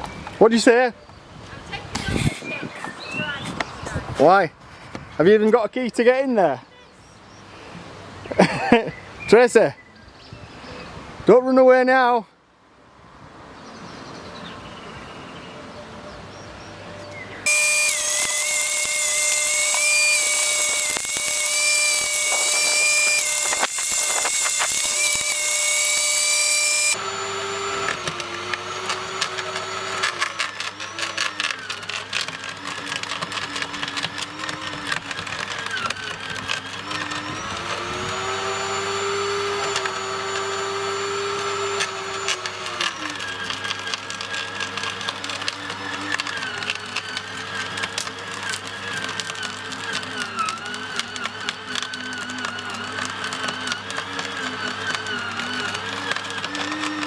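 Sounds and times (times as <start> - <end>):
garden shredder whining: 17.4 - 57.0
shredder crackling and chewing branches: 17.5 - 57.0.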